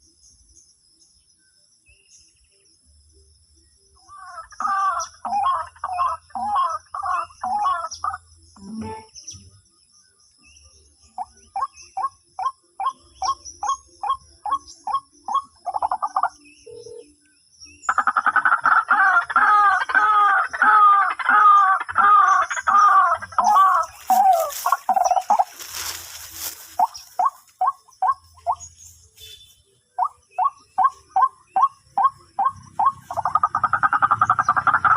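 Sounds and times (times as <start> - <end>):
bird harsh repeated calls: 4.0 - 9.5, 11.2 - 17.1, 17.9 - 34.9
rustling noise: 23.5 - 27.6.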